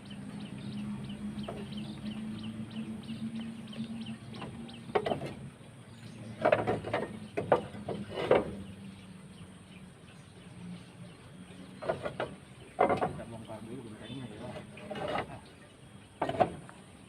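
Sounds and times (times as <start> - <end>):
low hum: 0.0 - 17.0
small birds chirping: 0.0 - 17.0
roof tiles clattering: 4.4 - 5.5, 6.3 - 8.6, 11.8 - 13.4.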